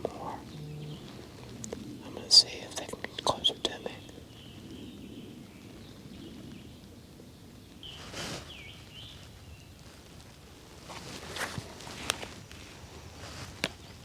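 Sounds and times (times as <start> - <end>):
songbird chirping: 0.0 - 10.0
rustle of leaves or clothing: 0.0 - 14.0.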